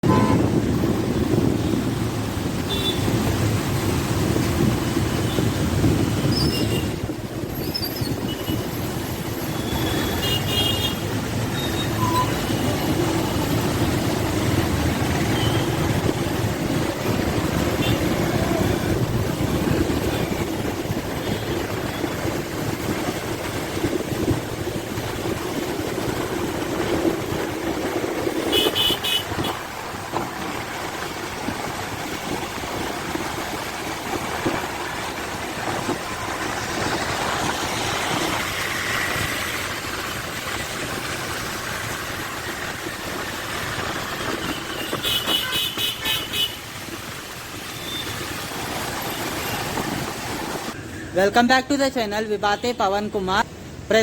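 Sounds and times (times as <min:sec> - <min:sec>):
passenger train running: 0:08.4 - 0:46.5.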